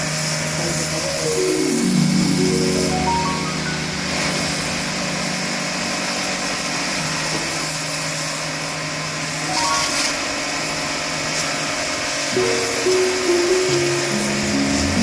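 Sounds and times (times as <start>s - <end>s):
water spray hissing: 9.5s - 15.0s.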